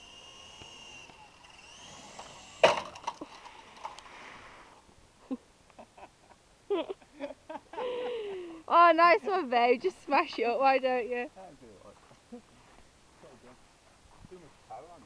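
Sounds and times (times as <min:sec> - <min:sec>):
model helicopter motor whining: 0:00.0 - 0:04.0.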